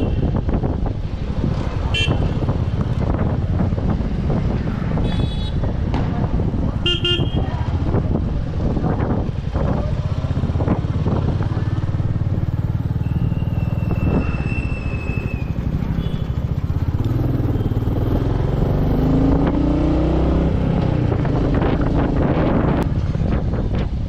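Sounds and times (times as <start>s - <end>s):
motorcycle engine accelerating: 7.6s - 24.0s.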